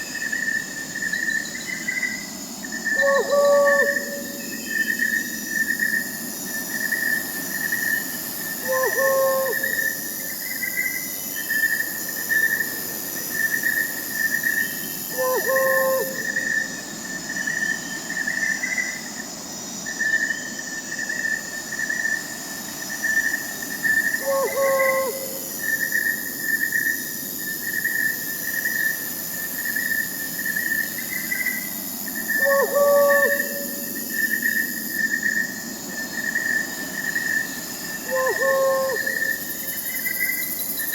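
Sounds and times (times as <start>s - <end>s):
crickets chirping: 0.0s - 40.9s
high insect hiss: 0.0s - 40.9s
owl hooting: 2.9s - 4.8s, 8.6s - 10.0s, 15.1s - 16.5s, 24.2s - 25.8s, 32.3s - 34.1s, 38.0s - 39.4s.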